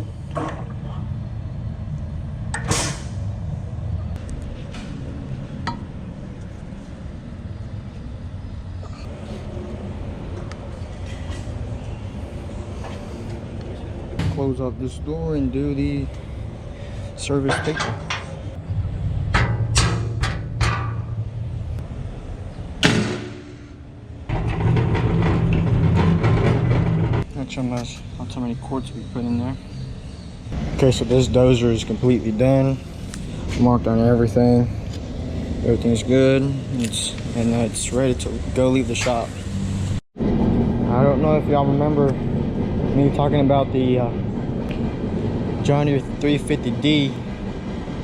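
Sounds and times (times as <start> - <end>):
low engine rumble: 0.0 - 48.0
steady low hum: 0.0 - 48.0
machine door slamming shut: 2.6 - 3.2, 22.8 - 27.2.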